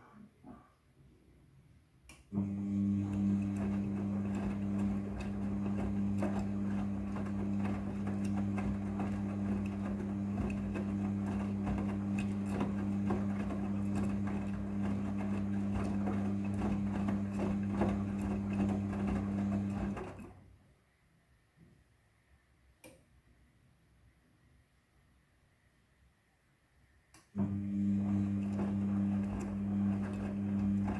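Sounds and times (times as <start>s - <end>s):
washing machine humming and rattling: 2.4s - 20.4s, 27.4s - 30.9s.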